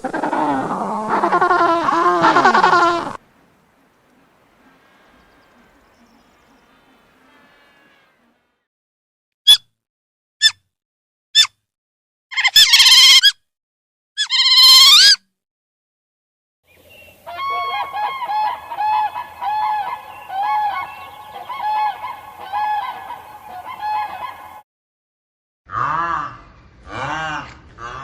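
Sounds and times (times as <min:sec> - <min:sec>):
loud animal calls: 0:00.0 - 0:08.4, 0:17.2 - 0:24.6
chorus of animal calls: 0:00.0 - 0:08.5, 0:17.1 - 0:24.6.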